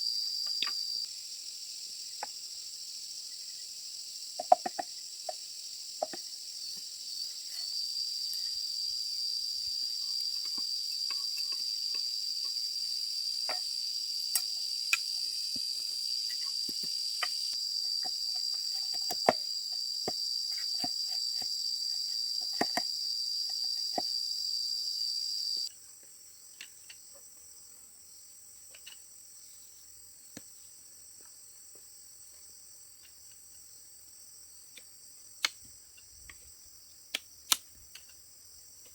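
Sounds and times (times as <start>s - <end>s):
faint high insect drone: 0.0s - 38.9s
insects trilling: 0.0s - 38.9s.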